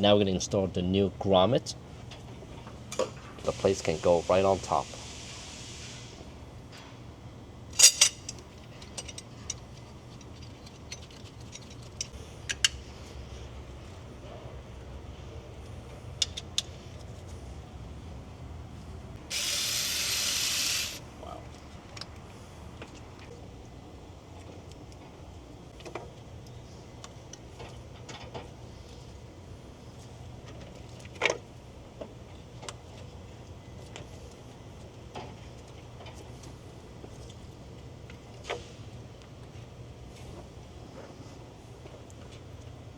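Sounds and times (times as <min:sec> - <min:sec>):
metal parts clicking and clinking: 0:07.8 - 0:12.7.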